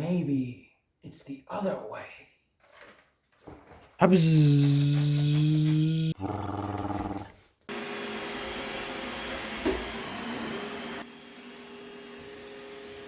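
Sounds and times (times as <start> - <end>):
robot vacuum cleaner running: 7.7 - 13.0.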